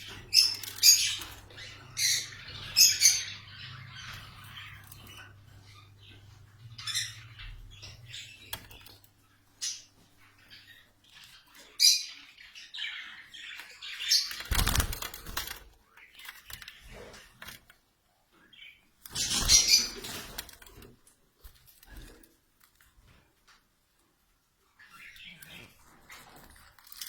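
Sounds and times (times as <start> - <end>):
high bird chirps: 0.0 - 9.0
budgerigars fluttering wings: 14.0 - 15.7, 19.1 - 20.9.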